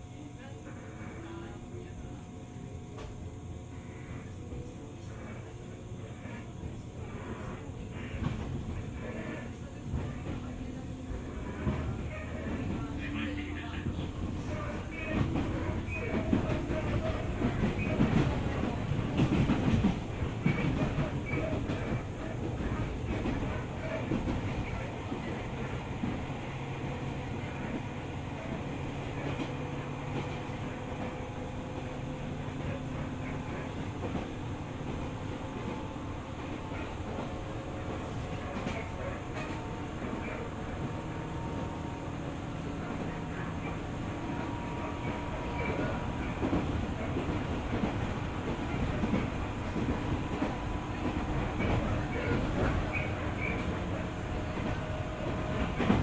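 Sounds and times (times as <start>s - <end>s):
low train hum: 0.0s - 56.0s
train wheels rumbling on rail: 0.0s - 56.0s.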